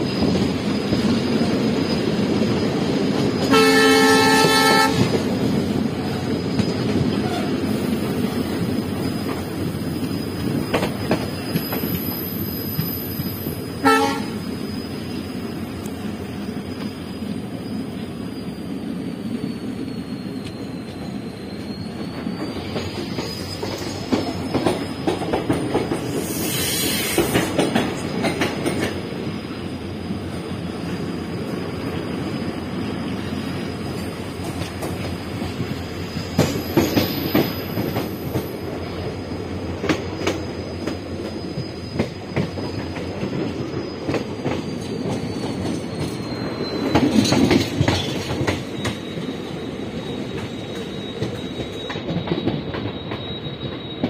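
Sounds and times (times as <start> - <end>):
high-pitched squeal: 0.0 - 28.2, 29.0 - 54.0
train rumble: 0.0 - 54.0
wheels clacking over rail joints: 22.0 - 29.2, 34.3 - 49.3.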